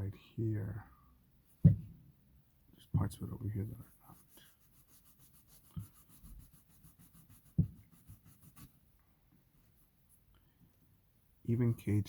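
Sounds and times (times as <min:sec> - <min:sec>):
knock: 0:01.6 - 0:02.0, 0:07.6 - 0:07.8
cloth rubbing a shoe: 0:02.9 - 0:08.9.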